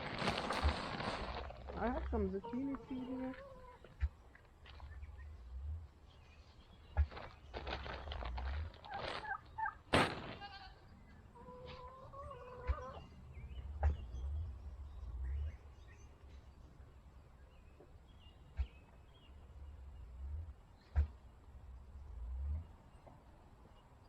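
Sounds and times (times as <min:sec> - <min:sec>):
drawn-out fowl-like call: 0:11.4 - 0:13.0.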